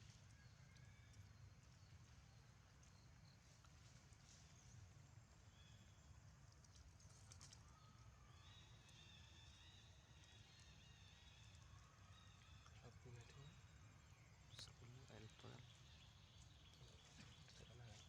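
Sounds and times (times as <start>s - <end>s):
faint ticks: 0.0s - 4.2s, 6.3s - 7.7s.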